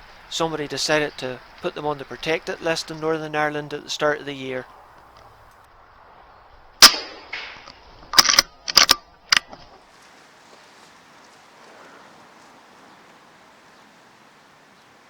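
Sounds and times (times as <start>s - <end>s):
air rifle shot: 6.8s - 8.4s
sharp metallic clicks: 6.8s - 9.7s.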